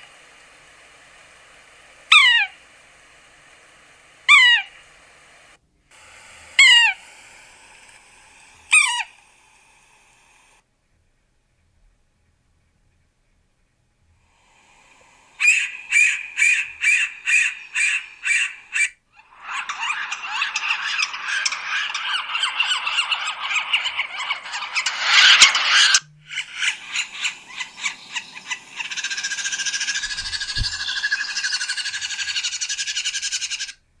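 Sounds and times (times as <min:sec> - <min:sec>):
sapsucker calling: 0:00.0 - 0:05.5, 0:06.2 - 0:07.2, 0:08.0 - 0:09.2, 0:14.5 - 0:33.9.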